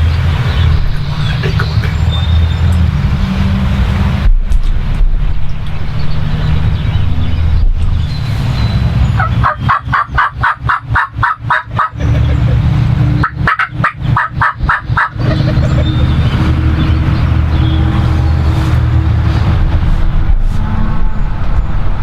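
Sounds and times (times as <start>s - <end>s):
steady low rumble: 0.0s - 22.0s
turkey yelps: 9.2s - 12.0s, 13.2s - 15.6s.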